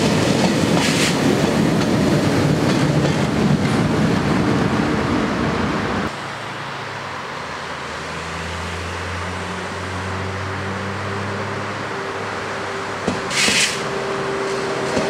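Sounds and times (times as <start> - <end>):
train rumbling past: 0.0 - 6.7, 7.6 - 15.0
train approaching low hum: 0.0 - 15.0.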